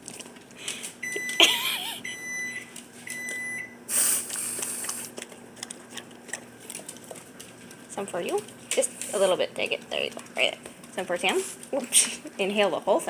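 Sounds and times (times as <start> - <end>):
short electronic appliance beeps: 1.0 - 1.4, 2.0 - 3.8.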